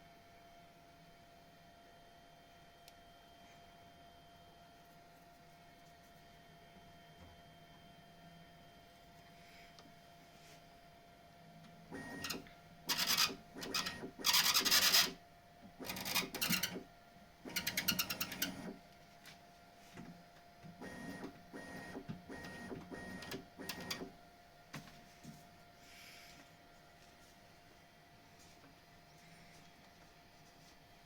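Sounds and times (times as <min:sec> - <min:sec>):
faint steady hum: 0:00.0 - 0:31.0
printer bed moving in bursts: 0:12.0 - 0:15.2, 0:15.8 - 0:16.8, 0:17.5 - 0:18.8, 0:20.8 - 0:24.1.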